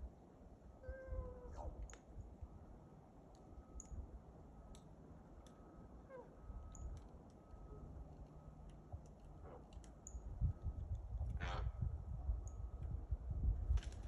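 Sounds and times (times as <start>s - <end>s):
raven mewing calls: 11.4s - 11.8s.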